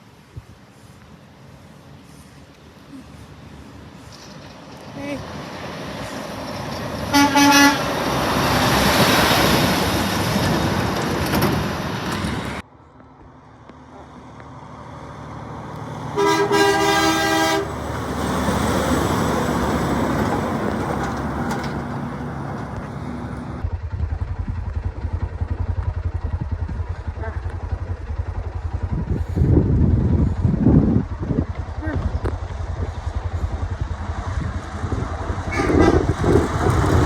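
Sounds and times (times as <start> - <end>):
trucks rushing past: 0.0 - 37.0
throbbing engine: 2.0 - 12.7, 14.0 - 37.0
truck horn blasts: 7.1 - 8.3, 16.1 - 17.8, 35.4 - 36.4.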